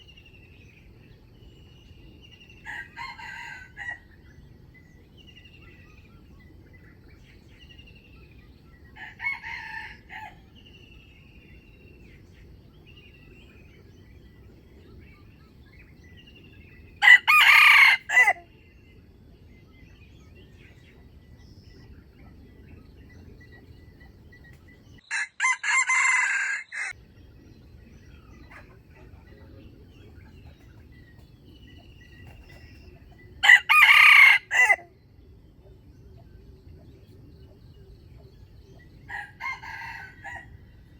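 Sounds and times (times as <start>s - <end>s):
small birds chirping: 0.0s - 25.2s, 26.6s - 40.9s
rooster crowing: 2.6s - 4.1s, 9.0s - 10.5s, 17.0s - 18.5s, 25.0s - 27.0s, 33.4s - 34.9s, 39.1s - 40.7s.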